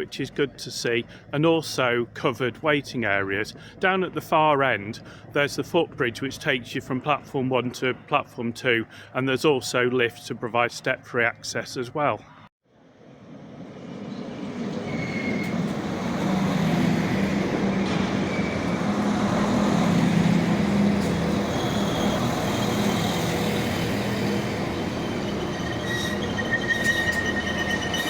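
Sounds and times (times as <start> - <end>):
train low hum: 0.0 - 10.3, 12.8 - 28.0
train high squeals: 14.1 - 28.0.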